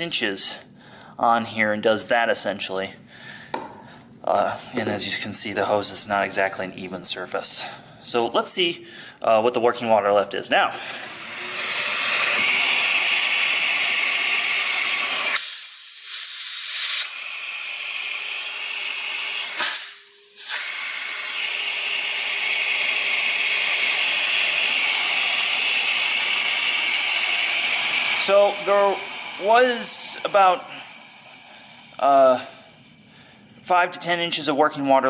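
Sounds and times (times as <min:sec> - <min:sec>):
vacuum suction hiss: 0:10.6 - 0:34.7.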